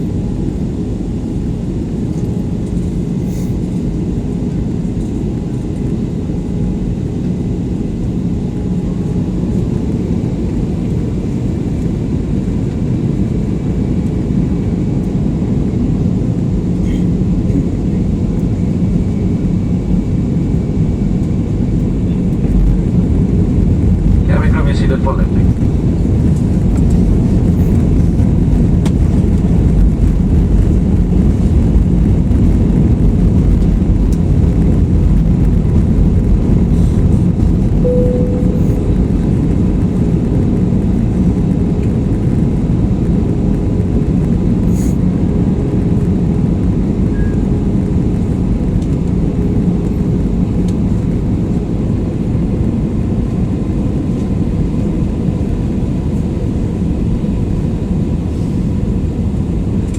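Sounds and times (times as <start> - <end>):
jet engine cabin rumble: 0.0 - 59.9
faint steady hum: 37.7 - 41.3.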